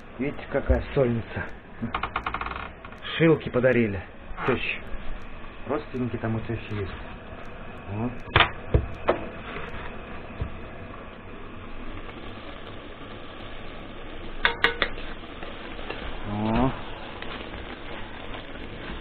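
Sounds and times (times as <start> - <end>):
food sizzling in fat: 0.0 - 19.0.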